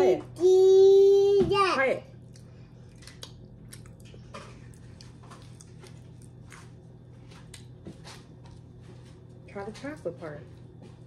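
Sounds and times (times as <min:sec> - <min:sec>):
steady low hum: 0:00.0 - 0:11.0
people chewing: 0:02.2 - 0:08.7.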